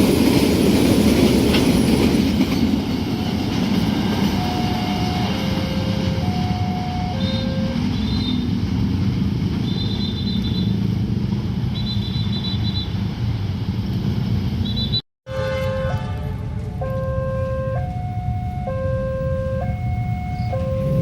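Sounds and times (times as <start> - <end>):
train wheels rumbling on rails: 0.0 - 15.0
two-tone crossing alarm: 4.1 - 8.5, 14.7 - 16.2, 16.8 - 21.0.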